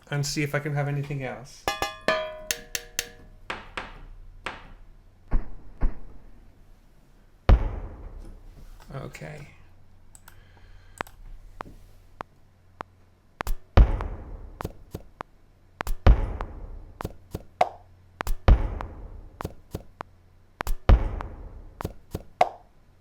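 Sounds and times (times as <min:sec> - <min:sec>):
looped percussive beat: 0:01.7 - 0:03.4.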